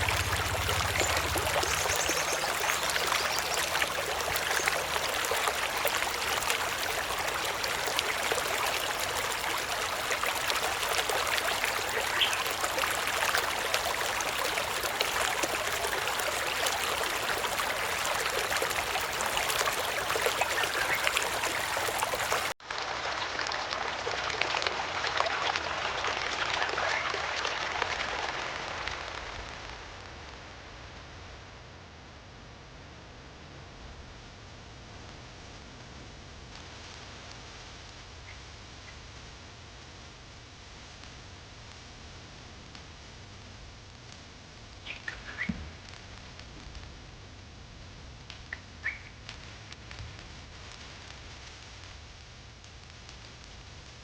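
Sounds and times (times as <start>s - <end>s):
water rushing: 0.0s - 22.6s.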